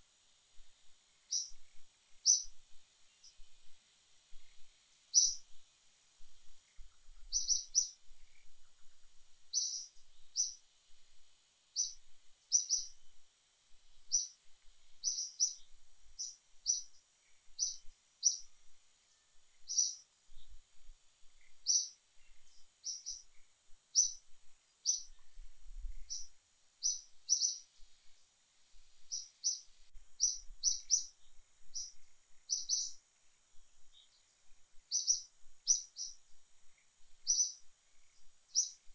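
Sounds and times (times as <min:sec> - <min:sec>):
faint high hiss: 0:00.0 - 0:38.9
bird chirping: 0:01.3 - 0:03.5, 0:04.4 - 0:05.6, 0:06.7 - 0:10.6, 0:11.8 - 0:13.0, 0:14.1 - 0:18.5, 0:19.1 - 0:20.6, 0:21.4 - 0:24.2, 0:24.8 - 0:27.8, 0:29.0 - 0:33.0, 0:33.8 - 0:36.2, 0:37.2 - 0:38.9.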